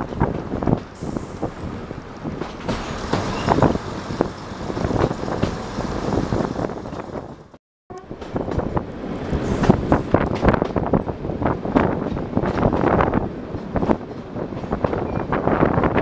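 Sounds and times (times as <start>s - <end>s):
wheels knocking on rails: 0.0s - 7.6s
train rumble: 0.0s - 16.0s
wind buffeting microphone: 0.0s - 16.0s.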